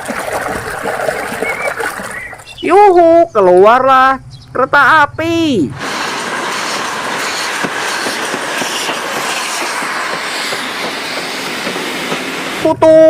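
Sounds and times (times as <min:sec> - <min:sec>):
train rumble with wheel clatter: 0:05.2 - 0:13.0.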